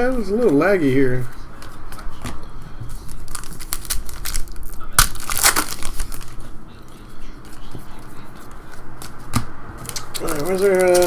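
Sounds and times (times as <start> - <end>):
card wrappers crinkling and tearing: 2.9 - 6.5, 7.4 - 11.0
sharp crack: 3.4 - 6.2.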